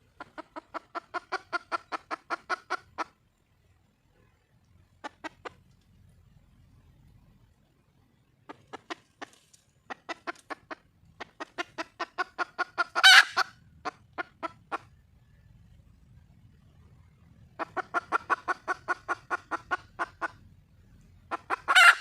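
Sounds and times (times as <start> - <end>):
hen clucking: 0.0 - 3.2, 5.0 - 5.7, 8.5 - 15.0, 17.5 - 20.5, 21.2 - 22.0
hen squawking: 11.3 - 14.9, 21.3 - 22.0.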